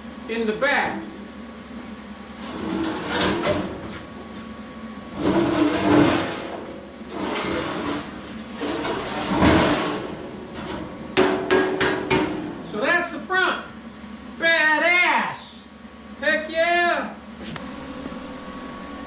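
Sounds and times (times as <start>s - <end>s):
steel shelf scraping on floor: 2.4s - 4.1s, 5.0s - 11.2s.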